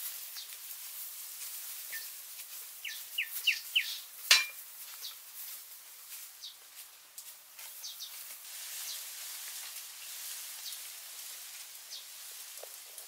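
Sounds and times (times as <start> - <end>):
steady high hiss: 0.0 - 13.0
bird calls: 1.9 - 2.2, 2.8 - 5.2.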